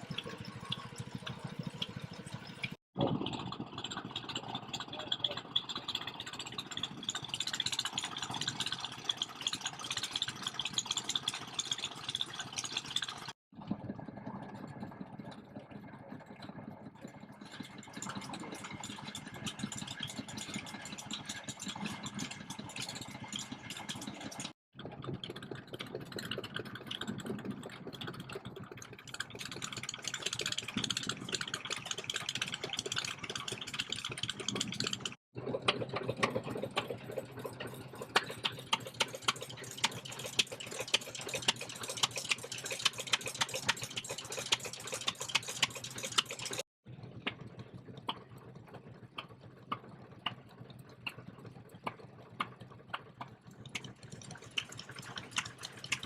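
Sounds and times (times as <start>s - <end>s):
stationary engines running: 28.9s - 46.6s
mechanical clicks and beats: 38.0s - 46.6s.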